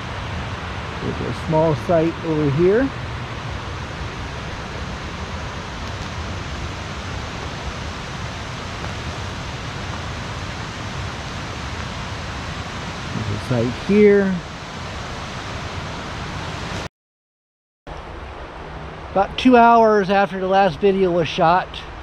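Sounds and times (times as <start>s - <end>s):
river water rushing: 0.0s - 16.9s.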